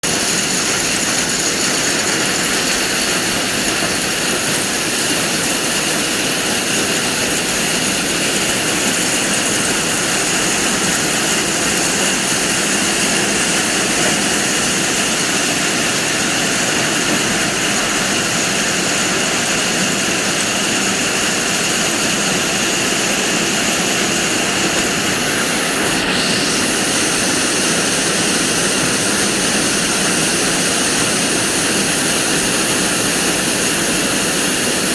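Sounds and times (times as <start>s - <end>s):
hail falling: 0.1s - 34.9s.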